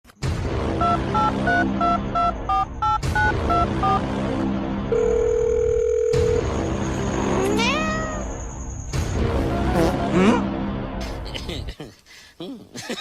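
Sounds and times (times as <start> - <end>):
background music: 0.1 - 13.0
steady telephone tone: 4.9 - 6.5.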